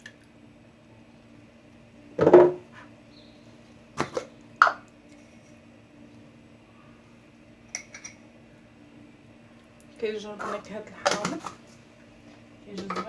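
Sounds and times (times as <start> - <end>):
faint steady hum: 0.0 - 13.0
dishes knocking: 2.2 - 2.6.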